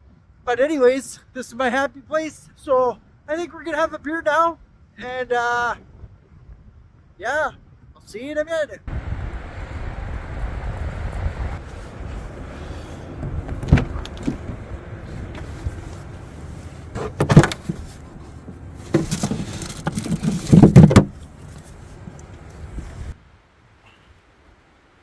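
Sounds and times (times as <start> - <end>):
wind rumbling on microphone: 5.8 - 8.0, 8.9 - 23.2
knocks and clunks: 12.1 - 23.2.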